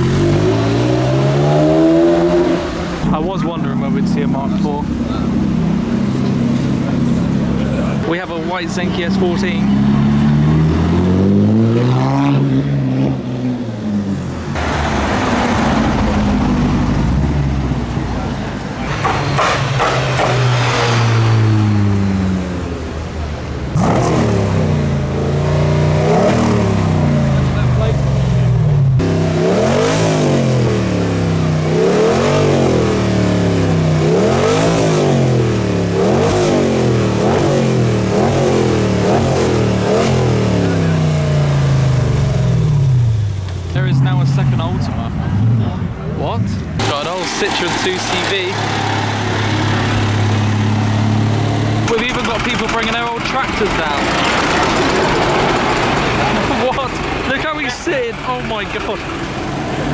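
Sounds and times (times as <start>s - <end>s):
car engine revving past: 0.0s - 52.1s
engine and road noise: 0.0s - 59.9s.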